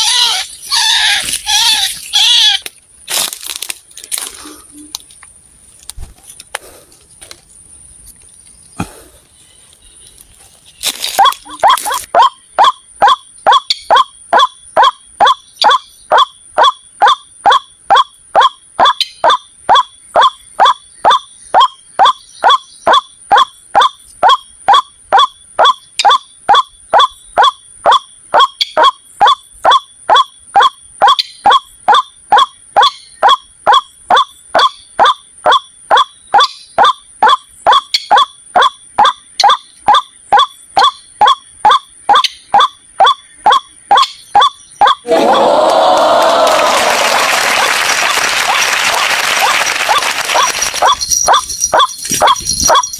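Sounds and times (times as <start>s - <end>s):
repeated bird call note: 11.2s - 46.4s.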